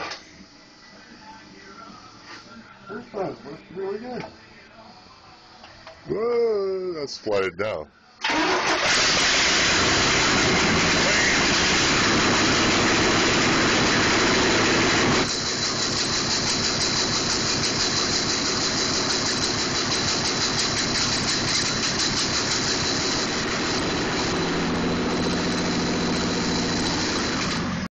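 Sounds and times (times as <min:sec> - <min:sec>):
engine running: 0:08.2 - 0:27.9
engine pulsing idle: 0:09.8 - 0:27.8.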